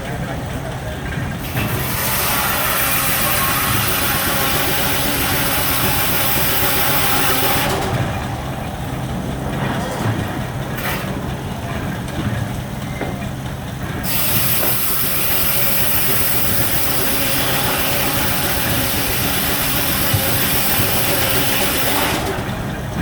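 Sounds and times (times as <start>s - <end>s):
steam engine running: 0.0s - 23.0s
loud hiss of escaping steam: 14.0s - 22.4s.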